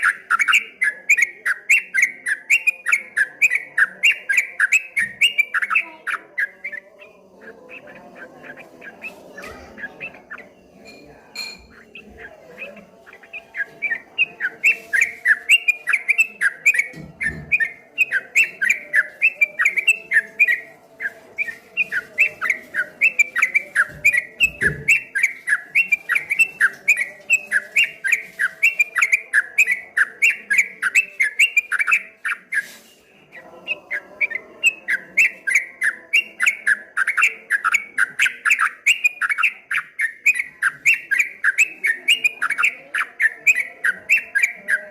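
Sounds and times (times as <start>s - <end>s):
bird chirping song: 0.0s - 44.9s.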